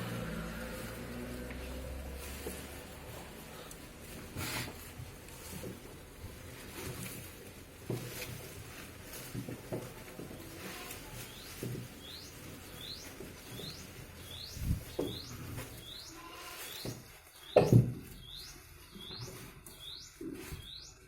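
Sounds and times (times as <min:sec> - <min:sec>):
bird chirping: 0:11.2 - 0:21.0.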